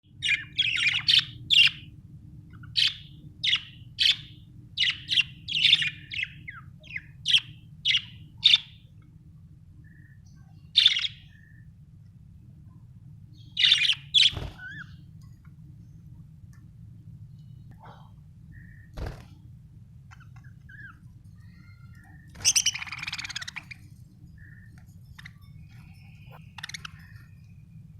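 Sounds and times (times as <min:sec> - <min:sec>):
steady low hum: 0:00.0 - 0:27.9
budgerigar chirping: 0:20.1 - 0:23.8, 0:24.4 - 0:27.1.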